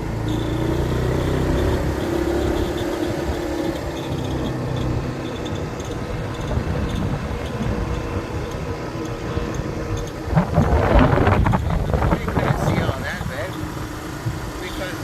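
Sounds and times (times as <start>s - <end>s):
motorcycle engine running: 0.0s - 15.0s
road and wind noise: 0.0s - 15.0s.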